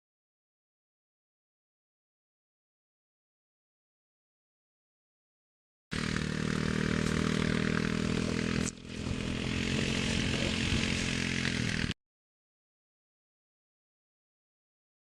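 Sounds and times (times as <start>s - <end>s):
boat engine running: 5.9s - 11.9s.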